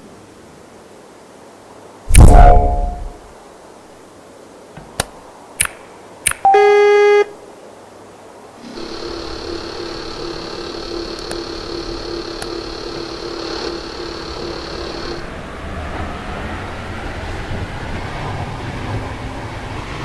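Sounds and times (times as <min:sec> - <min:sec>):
sharp clicks: 0:04.8 - 0:06.6, 0:09.9 - 0:15.2
train running with hum and whine: 0:08.6 - 0:20.0.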